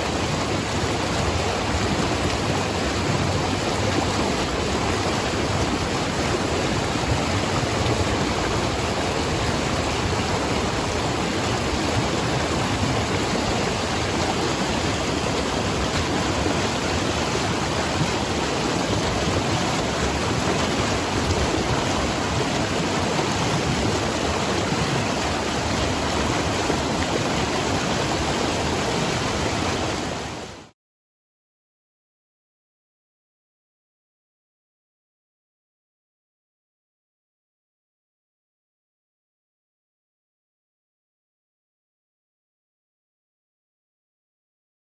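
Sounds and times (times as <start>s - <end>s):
river water rushing: 0.0s - 30.7s.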